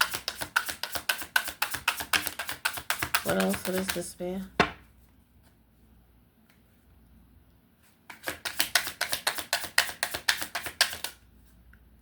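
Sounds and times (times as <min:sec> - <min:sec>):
cards being shuffled: 0:08.1 - 0:11.2.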